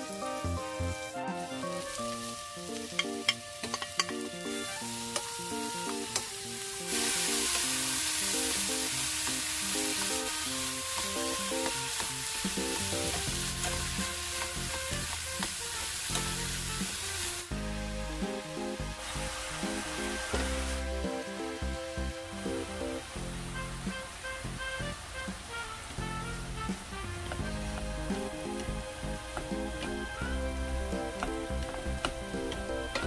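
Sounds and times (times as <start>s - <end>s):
mushrooms sizzling in a pan: 0.0s - 33.0s.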